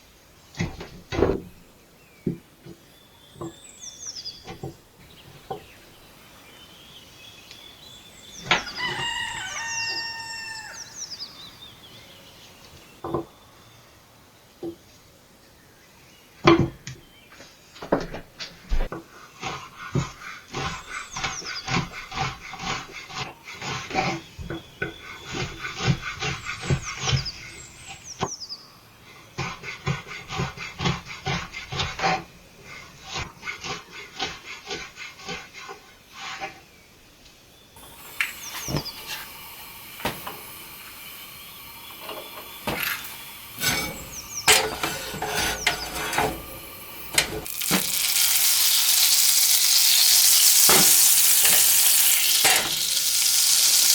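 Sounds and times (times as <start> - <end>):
frying sizzle: 37.8 - 53.9.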